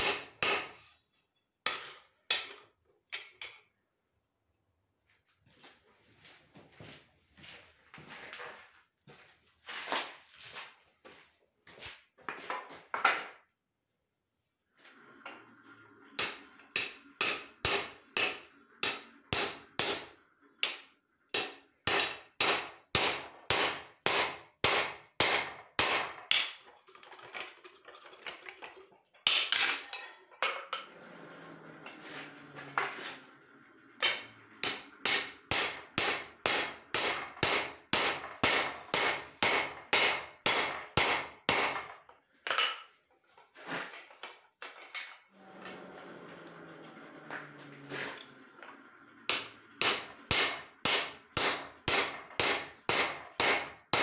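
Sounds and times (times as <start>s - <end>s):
hammer striking steel on anvil: 0.0s - 0.8s, 16.2s - 20.8s, 21.4s - 26.5s, 34.0s - 41.9s, 49.3s - 54.0s.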